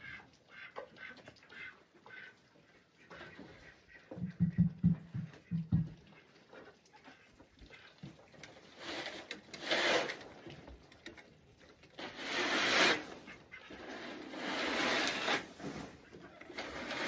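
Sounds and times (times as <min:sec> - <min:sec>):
tool scraping through bedding: 0:08.7 - 0:10.4, 0:12.0 - 0:17.0.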